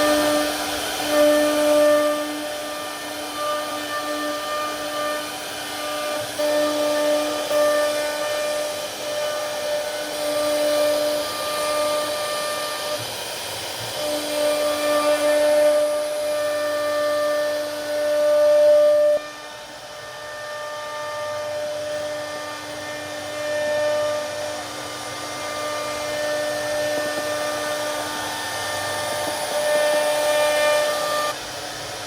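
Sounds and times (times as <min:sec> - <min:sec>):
router spindle whining cutting wood: 0:00.0 - 0:32.0.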